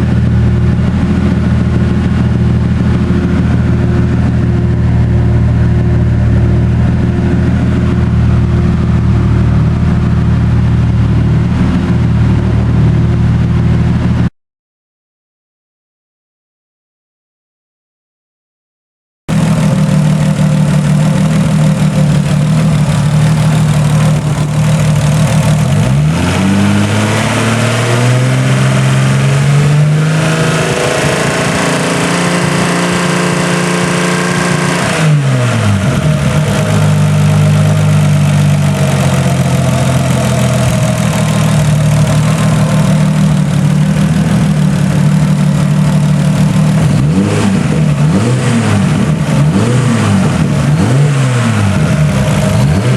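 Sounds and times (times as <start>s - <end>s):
car engine idling and revving: 0.0s - 14.3s, 19.3s - 52.9s
engine ticking noise: 19.3s - 26.1s, 36.0s - 47.2s.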